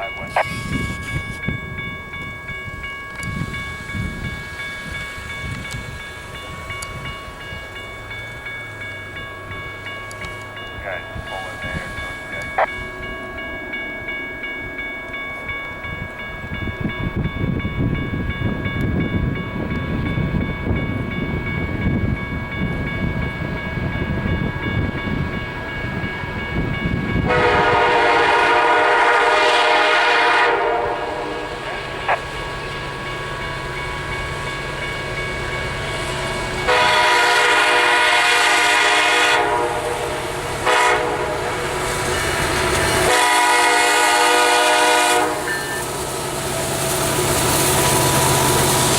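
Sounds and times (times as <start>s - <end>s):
level crossing warning bell: 0.0s - 48.9s
locomotive horn: 27.2s - 32.2s, 36.6s - 45.8s.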